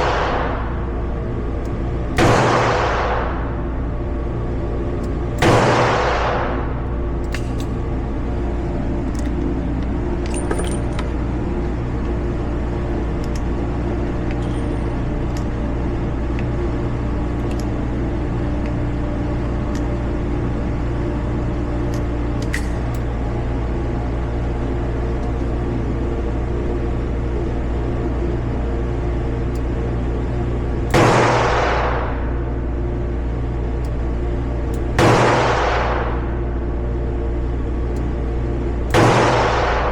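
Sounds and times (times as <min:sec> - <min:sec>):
steady low hum: 0:00.0 - 0:39.9
faint metallic clicks and clinks: 0:10.2 - 0:11.1.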